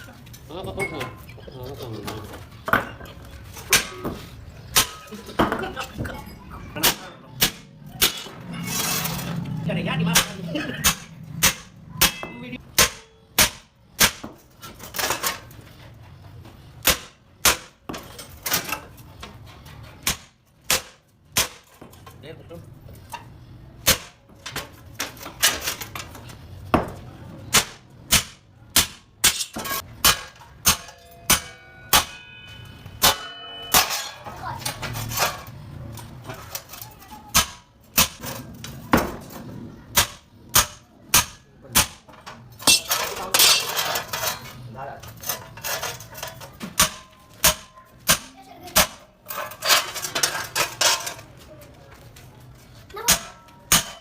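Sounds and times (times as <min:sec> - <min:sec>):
hammer striking sheet metal: 0:10.2 - 0:14.3, 0:27.5 - 0:34.2
light metallic clattering: 0:42.2 - 0:47.3.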